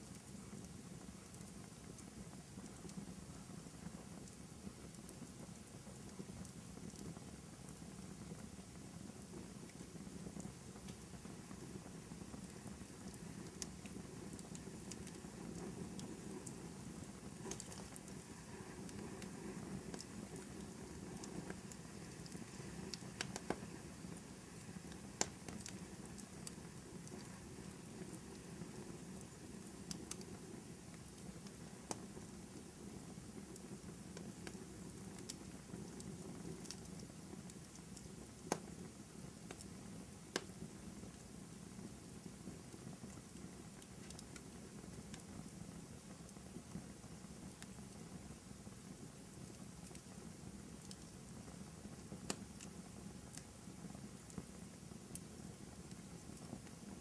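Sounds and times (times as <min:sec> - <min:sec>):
fire crackling and popping: 0:00.0 - 0:57.0
wood fire rumbling: 0:00.0 - 0:57.0.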